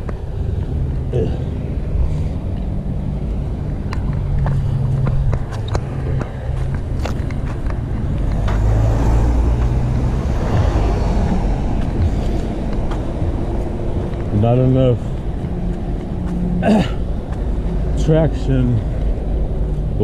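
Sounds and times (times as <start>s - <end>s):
motor traffic: 0.0s - 20.0s
road rumble: 0.0s - 20.0s
wind: 0.0s - 20.0s
sharp clicks and knocks: 3.8s - 8.8s.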